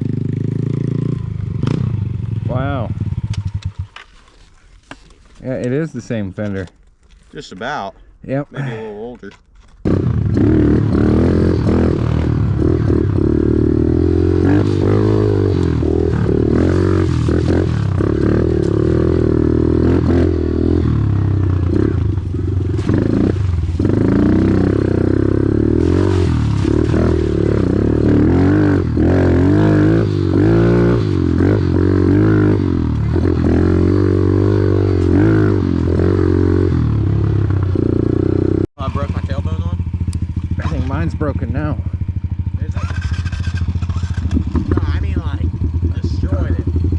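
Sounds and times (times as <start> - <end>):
small engines revving: 9.8 - 46.9.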